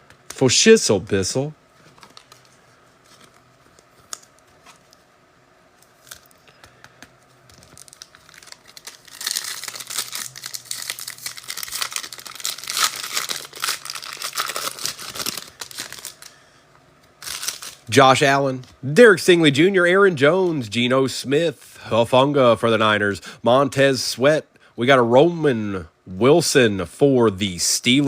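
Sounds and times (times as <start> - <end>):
wrapper tearing and crinkling: 5.8 - 6.4, 7.5 - 16.4, 17.2 - 17.9.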